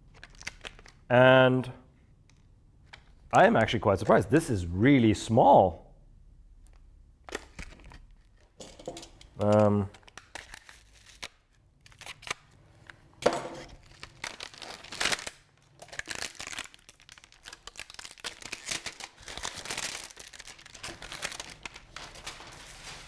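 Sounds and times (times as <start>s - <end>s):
packaging crinkling and tearing: 0.0s - 1.1s, 9.4s - 13.0s, 13.6s - 23.0s.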